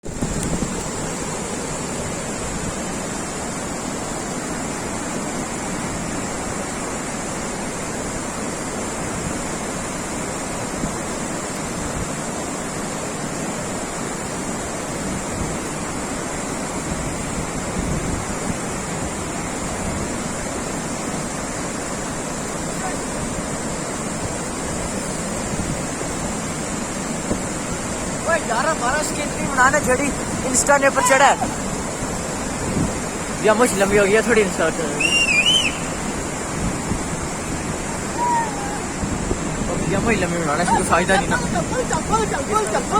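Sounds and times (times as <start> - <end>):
wind buffeting microphone: 0.0 - 3.5, 14.6 - 42.9
waterfall roaring: 0.1 - 42.9.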